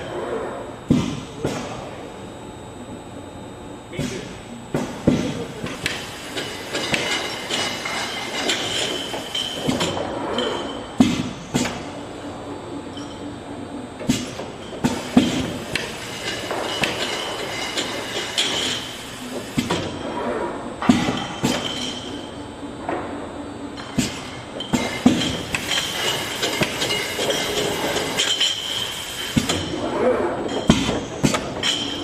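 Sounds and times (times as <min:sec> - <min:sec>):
bottle-filling machine running: 0:04.9 - 0:20.0, 0:23.8 - 0:29.8
bottles clinking: 0:06.0 - 0:10.9, 0:15.2 - 0:18.9, 0:24.0 - 0:29.7, 0:31.6 - 0:32.0.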